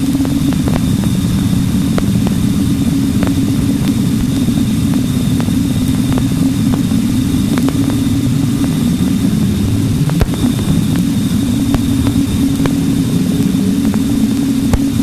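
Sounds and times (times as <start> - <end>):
dense low rumble: 0.0 - 15.0
sharp clicks: 7.5 - 8.8, 10.0 - 15.0.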